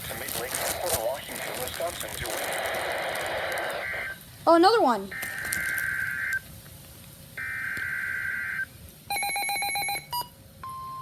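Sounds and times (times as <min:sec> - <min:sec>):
warbling data tone: 0:02.2 - 0:04.2.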